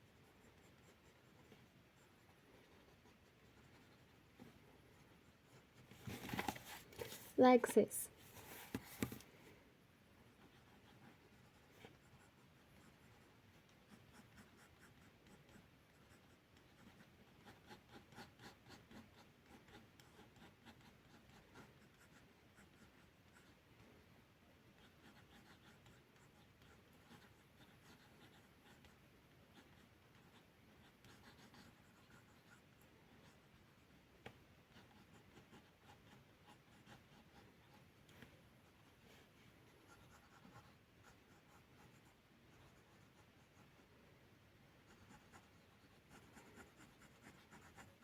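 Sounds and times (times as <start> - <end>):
pencil scratching on paper: 0.1 - 9.2, 10.3 - 23.6, 24.7 - 33.8, 34.7 - 43.8, 44.8 - 48.0.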